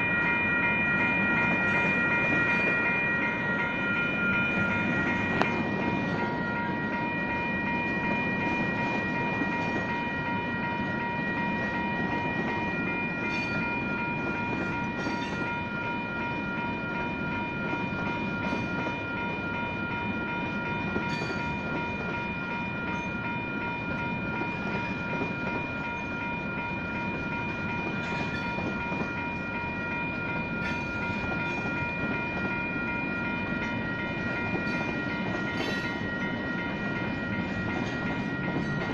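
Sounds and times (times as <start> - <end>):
crossing bells ringing: 0.0 - 38.9
railroad cars rumbling: 0.0 - 38.9
train wheels clicking: 33.4 - 38.9.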